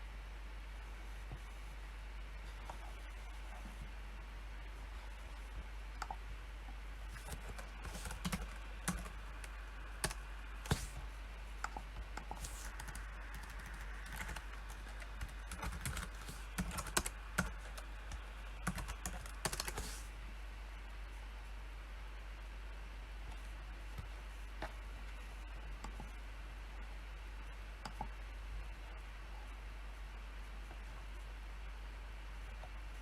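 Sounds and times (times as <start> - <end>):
typing on keyboard: 7.2 - 10.9, 11.6 - 20.0.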